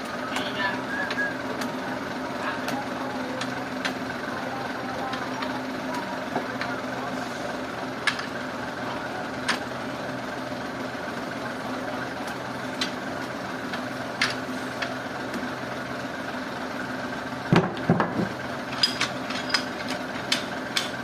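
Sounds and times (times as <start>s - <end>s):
engine idling: 0.0s - 21.0s
knocks and clanks: 17.5s - 21.0s.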